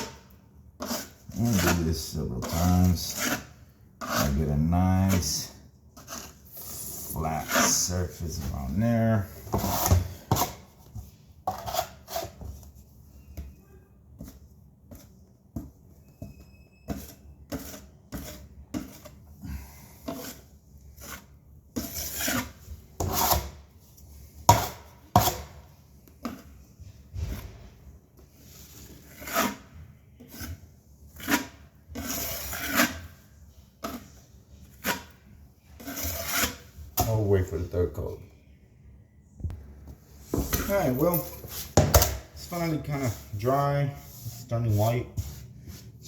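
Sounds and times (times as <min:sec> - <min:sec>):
putty knife scraping drywall: 0:00.0 - 0:10.8, 0:11.4 - 0:12.8, 0:16.1 - 0:19.3, 0:20.0 - 0:23.7, 0:24.4 - 0:27.7, 0:28.3 - 0:37.6.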